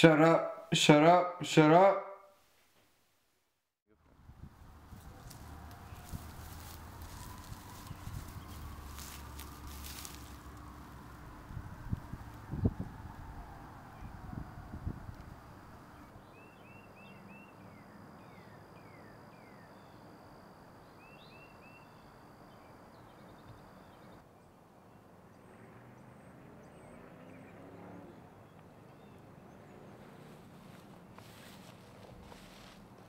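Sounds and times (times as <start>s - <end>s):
low steady rumble: 4.0s - 16.2s
small birds chirping: 5.0s - 10.4s.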